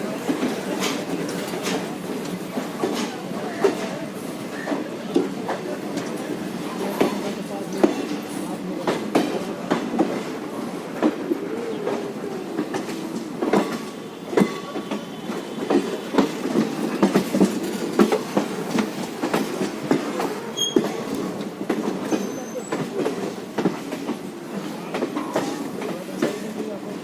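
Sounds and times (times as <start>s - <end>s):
train wheels clattering: 0.0s - 27.0s
faint wheel squeals: 20.5s - 21.0s, 22.1s - 22.8s.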